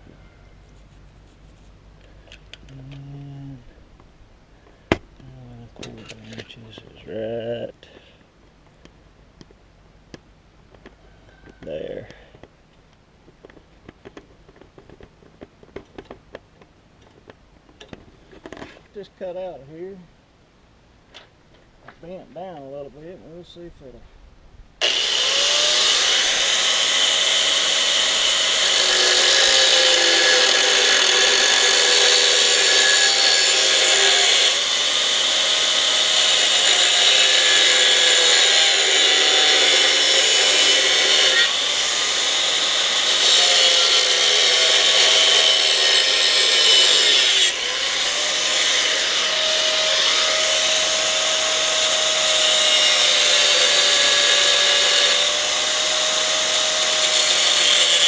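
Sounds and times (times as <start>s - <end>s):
power tool cutting steel: 24.8s - 58.0s.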